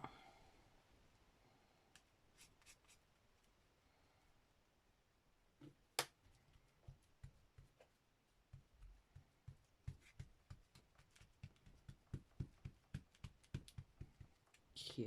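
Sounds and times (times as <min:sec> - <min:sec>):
fingers tapping paper: 0:08.5 - 0:14.7.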